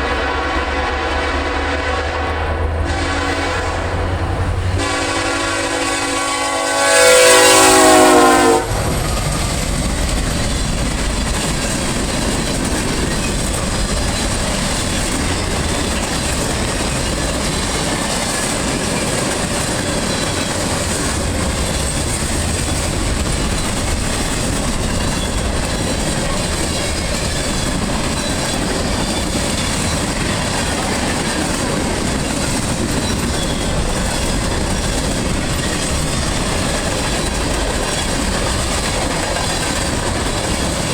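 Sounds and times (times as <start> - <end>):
train horn: 0.0 - 9.3
train wheels clicking over rail joints: 6.8 - 40.9.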